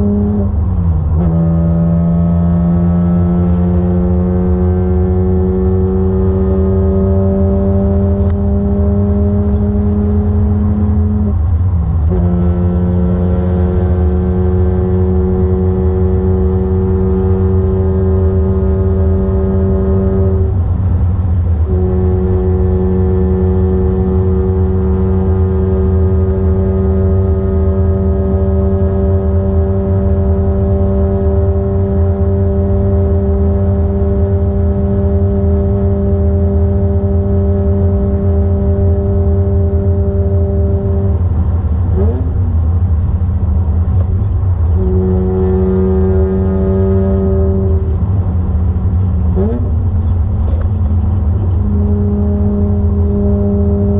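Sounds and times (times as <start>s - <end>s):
car engine accelerating: 0.0s - 53.9s
low road rumble: 0.0s - 53.9s.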